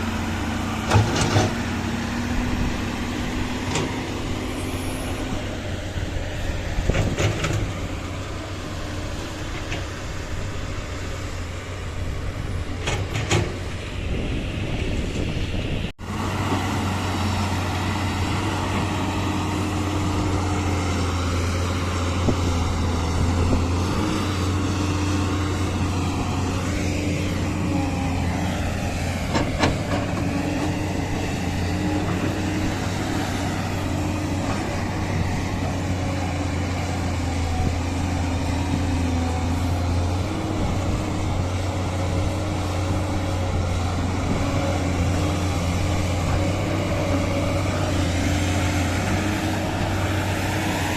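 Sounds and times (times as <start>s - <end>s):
diesel machinery engine hum: 0.0s - 50.9s.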